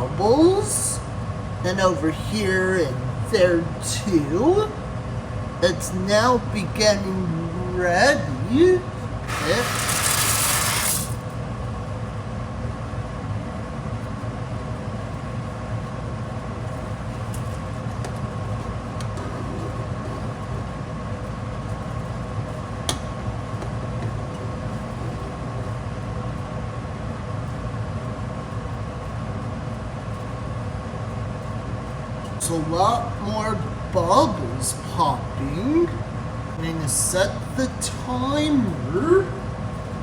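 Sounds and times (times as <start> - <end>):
electrical hum: 0.0 - 40.0
short loud hiss: 9.3 - 11.2.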